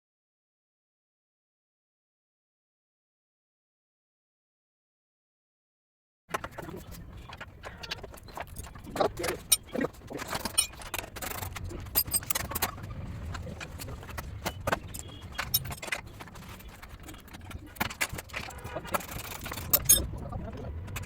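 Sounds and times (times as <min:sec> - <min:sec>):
metallic clinks and knocks: 0:08.0 - 0:20.1.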